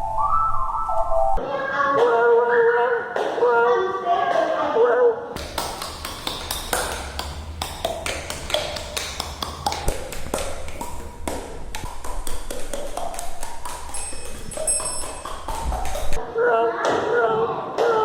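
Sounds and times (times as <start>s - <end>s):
taps and clicks: 5.4s - 16.2s.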